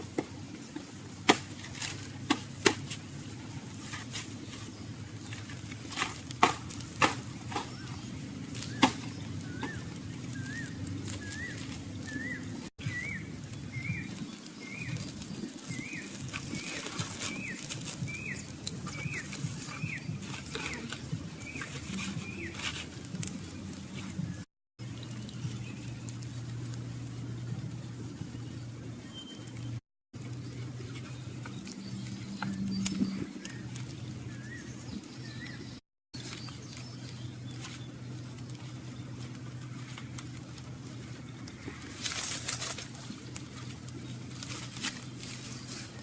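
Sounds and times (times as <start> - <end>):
small bird chirping: 7.4 - 39.9.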